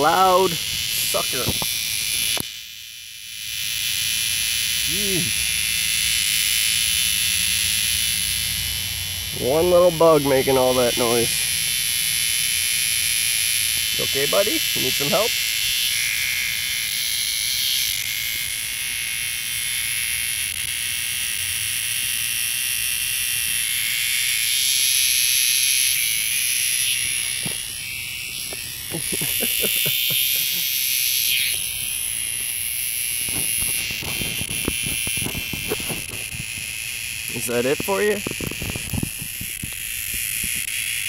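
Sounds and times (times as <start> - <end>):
cicada buzzing: 0.0 - 41.0.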